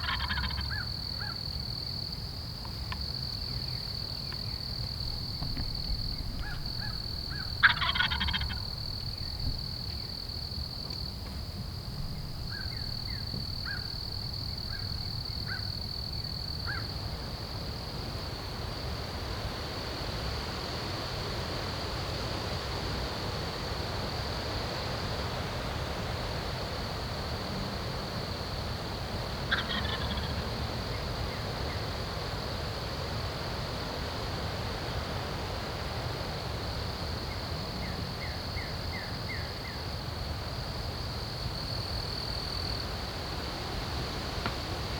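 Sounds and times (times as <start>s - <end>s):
turkey gobbling: 0.0s - 0.8s, 6.4s - 8.6s, 29.5s - 30.4s
high insect trill: 0.0s - 44.9s
light wind: 0.0s - 44.9s.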